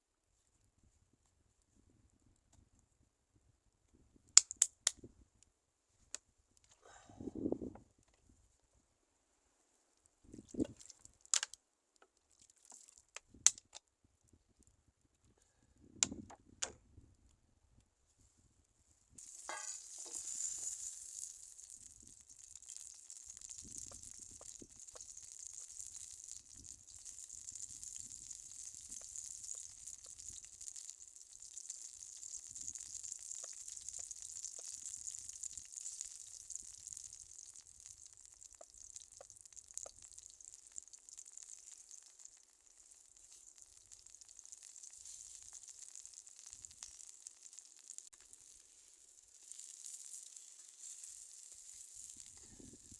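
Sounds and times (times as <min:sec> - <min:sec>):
food sizzling in a pan: 0:19.2 - 0:52.9.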